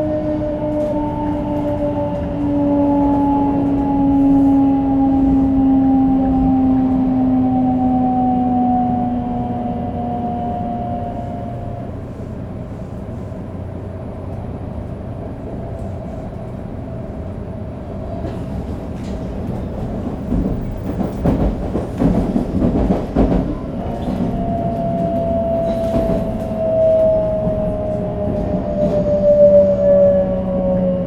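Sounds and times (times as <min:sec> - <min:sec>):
train inverter whine: 0:00.0 - 0:31.0
wheels rumbling on rail: 0:00.0 - 0:31.0.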